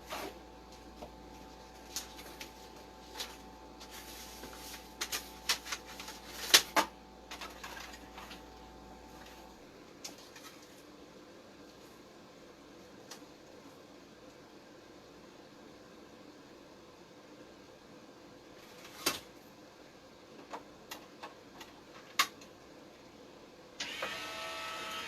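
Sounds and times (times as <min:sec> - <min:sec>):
objects being handled: 0:00.0 - 0:10.8
faint steady hum: 0:00.0 - 0:25.0.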